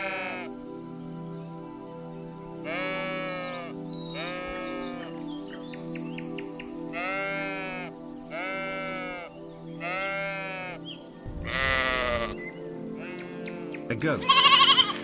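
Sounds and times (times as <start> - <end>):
sheep bleating: 0.0 - 0.5, 2.7 - 5.1, 6.9 - 10.8, 11.4 - 12.4, 13.0 - 15.0
background music: 0.0 - 15.0.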